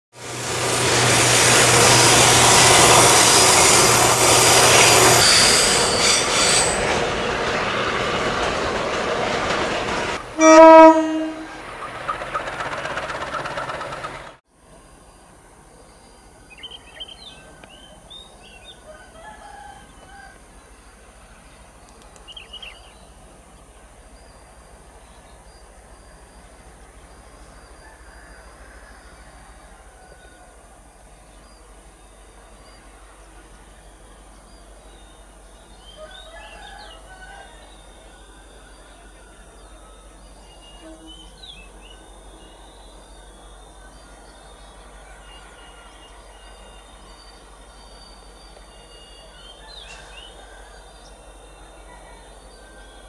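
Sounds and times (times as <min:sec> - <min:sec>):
diesel freight train rumble: 0:00.2 - 0:14.4, 0:16.3 - 0:53.0
train horn blast: 0:10.2 - 0:11.8, 0:40.6 - 0:41.7.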